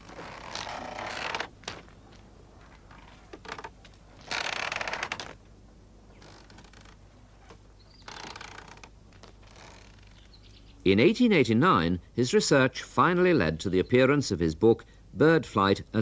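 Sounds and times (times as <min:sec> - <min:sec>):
mechanism creaking and rattling: 0:00.0 - 0:01.9, 0:02.8 - 0:05.4, 0:06.2 - 0:10.3.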